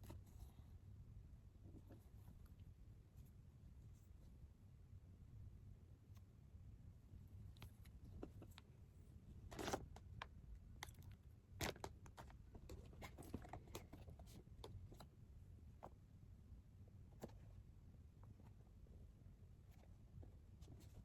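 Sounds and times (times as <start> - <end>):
faint low room hum: 0.0 - 21.0.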